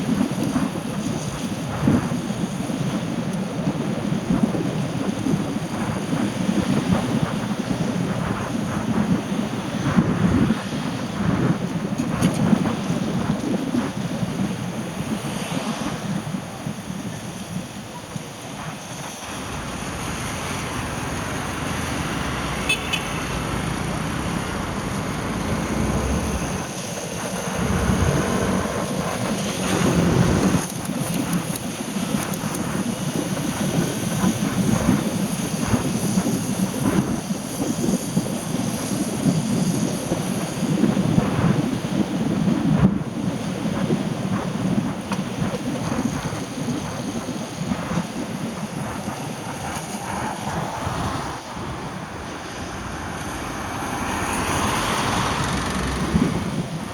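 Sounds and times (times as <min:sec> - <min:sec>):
tyres hissing on wet road: 0:12.9 - 0:32.2, 0:48.2 - 0:56.9
vehicles passing: 0:19.0 - 0:31.6, 0:49.8 - 0:56.9.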